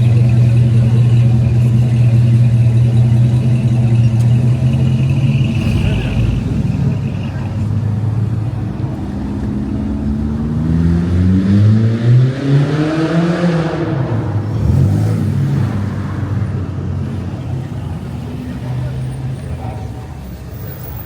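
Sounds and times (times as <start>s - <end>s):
vehicle driving past: 4.9s - 9.2s.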